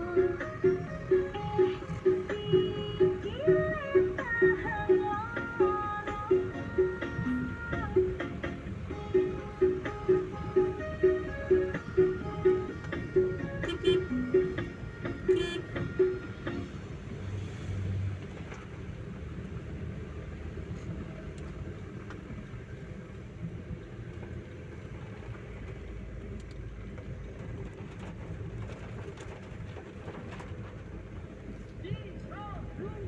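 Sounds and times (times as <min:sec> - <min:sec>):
road traffic noise: 0:00.0 - 0:33.0
short low horn tone: 0:10.8 - 0:16.6.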